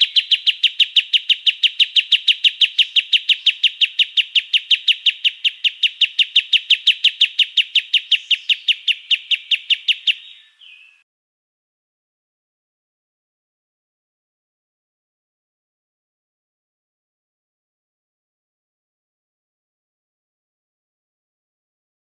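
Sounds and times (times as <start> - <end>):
songbird rapid call: 0.0 - 11.0.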